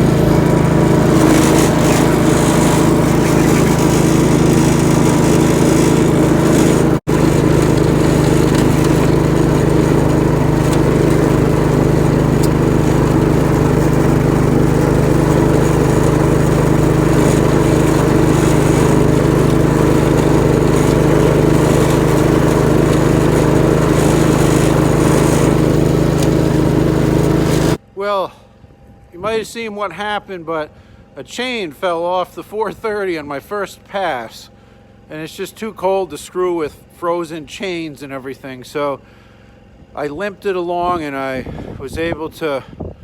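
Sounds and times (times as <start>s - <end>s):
garden tractor engine running: 0.0s - 27.8s.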